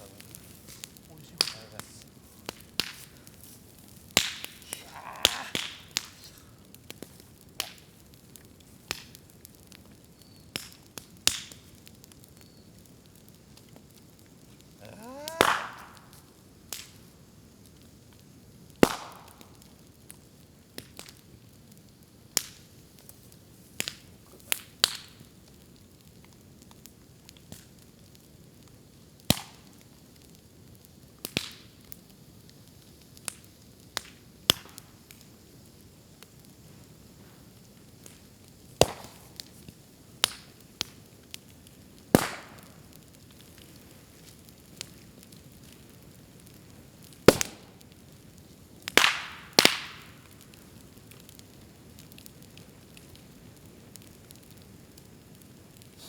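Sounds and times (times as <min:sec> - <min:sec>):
bamboo cracking and popping: 0:00.0 - 0:12.2, 0:12.8 - 0:17.0, 0:18.8 - 0:19.6, 0:31.2 - 0:31.7, 0:38.8 - 0:41.4, 0:42.1 - 0:48.0, 0:48.9 - 0:51.5
fire crackling: 0:00.0 - 0:56.0.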